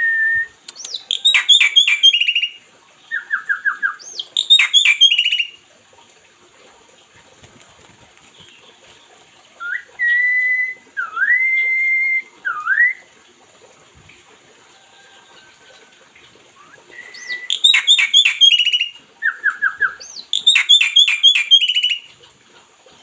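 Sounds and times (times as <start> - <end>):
bird whistling notes: 3.2 - 5.5, 16.6 - 22.0
bird chirping sharply: 4.0 - 5.5, 17.1 - 18.9, 20.0 - 22.0.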